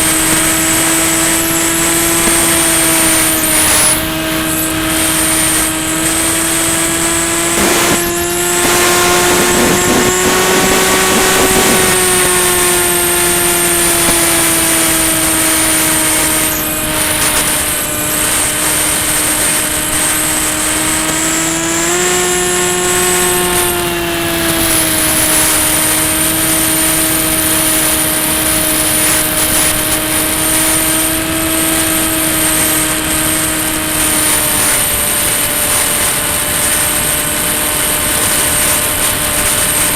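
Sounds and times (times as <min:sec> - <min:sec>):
electric motor and propeller whine: 0:00.0 - 0:39.9
wind rush: 0:02.0 - 0:21.5.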